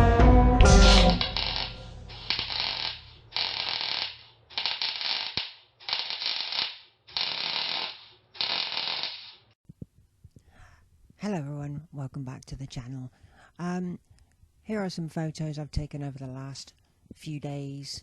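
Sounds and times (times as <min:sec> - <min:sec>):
noisy mechanical strokes: 0:00.8 - 0:05.0.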